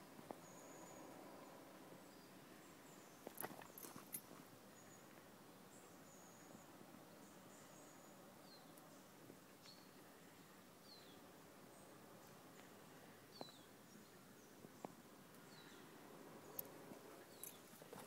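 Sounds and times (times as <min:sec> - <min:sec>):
small bird chirping: 0:13.3 - 0:18.0.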